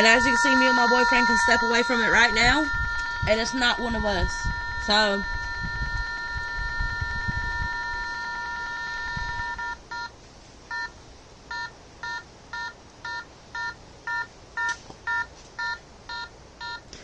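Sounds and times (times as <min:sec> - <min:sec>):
electronic meter beeping: 0:00.0 - 0:16.9.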